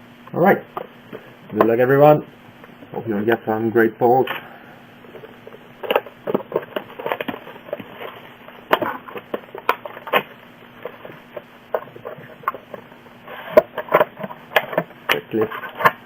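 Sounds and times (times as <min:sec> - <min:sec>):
cracks crinkles and rustles: 0:00.4 - 0:16.0
packaging tearing: 0:05.1 - 0:16.0.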